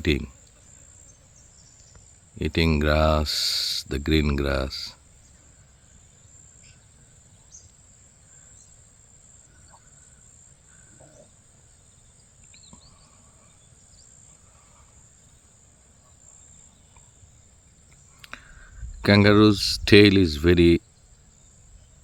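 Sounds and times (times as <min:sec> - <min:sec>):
faint bird chirps: 0:05.1 - 0:22.0
low wind rumble: 0:18.4 - 0:20.8.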